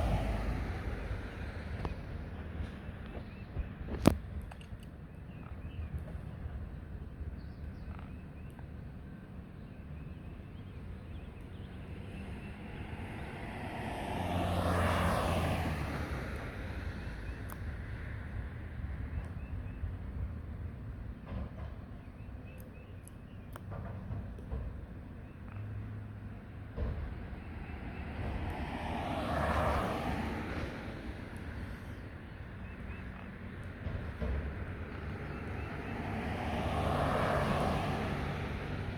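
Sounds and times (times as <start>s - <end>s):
vehicle passing by: 0.0s - 1.8s, 12.0s - 17.3s, 26.8s - 32.0s, 33.8s - 38.9s
low engine hum: 0.0s - 38.9s.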